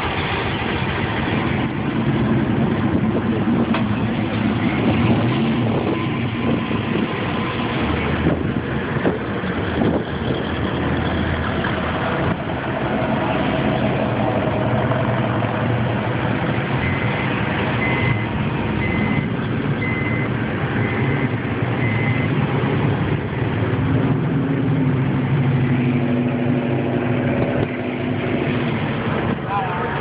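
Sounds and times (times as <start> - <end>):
car and truck engines running: 0.0 - 30.0
short high beep: 16.8 - 22.4.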